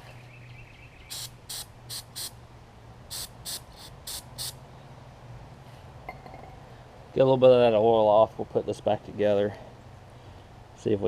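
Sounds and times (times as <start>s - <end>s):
hissing spray bursts: 1.1s - 2.4s, 3.1s - 4.6s.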